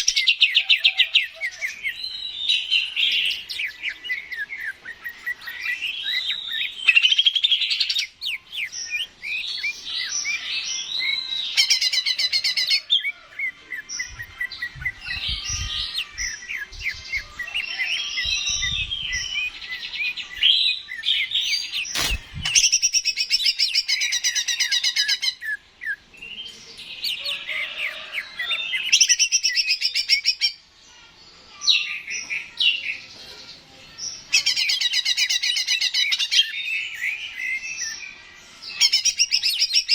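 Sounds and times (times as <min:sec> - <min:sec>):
sharp click: 0:21.9 - 0:23.2.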